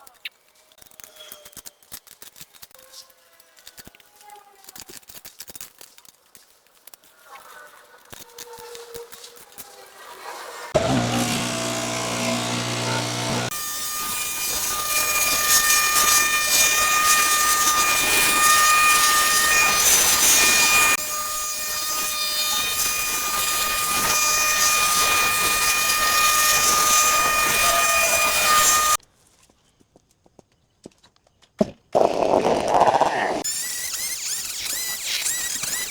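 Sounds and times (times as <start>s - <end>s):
power tool whining: 10.6s - 29.0s, 33.3s - 35.9s.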